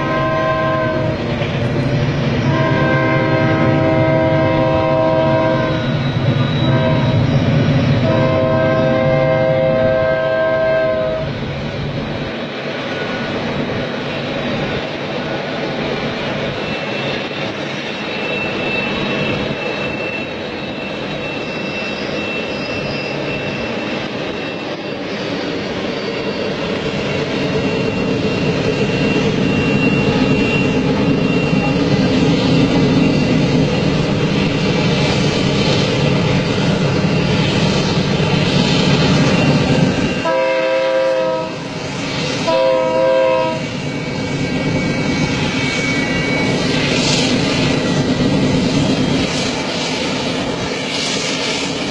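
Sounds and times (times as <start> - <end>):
train horn blasts: 0.0 - 1.3, 2.4 - 6.0, 6.6 - 7.4, 8.0 - 11.3, 40.1 - 41.8, 42.4 - 43.7
freight train rumbling: 0.0 - 51.9
faint high squeal: 3.6 - 8.1, 16.4 - 41.1, 43.1 - 51.9.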